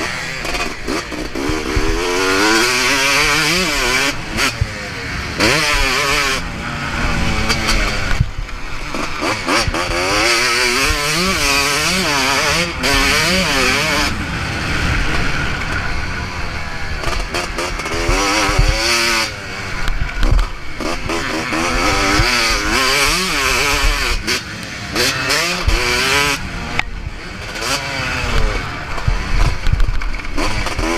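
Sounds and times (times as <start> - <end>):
motocross bike engine revving: 0.0 - 30.9.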